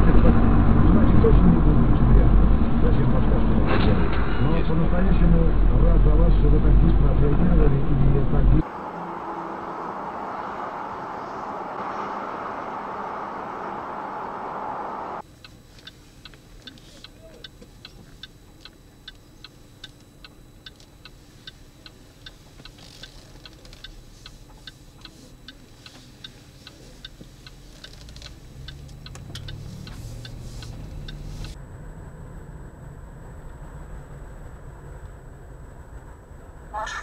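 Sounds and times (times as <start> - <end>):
engine and road rumble: 0.0 - 37.0
turn signal relay ticking: 15.2 - 31.6.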